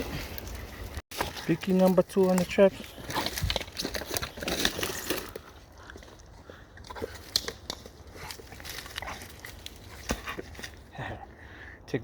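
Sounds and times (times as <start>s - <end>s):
dry leaves crackling and rustling: 0.2s - 5.5s.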